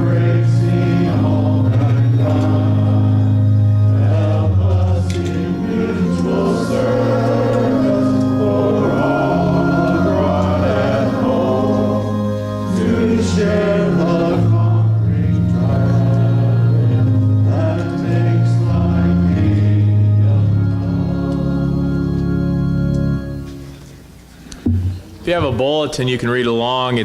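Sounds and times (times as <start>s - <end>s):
congregation singing a hymn: 0.0s - 23.8s
organ accompaniment: 0.0s - 27.0s.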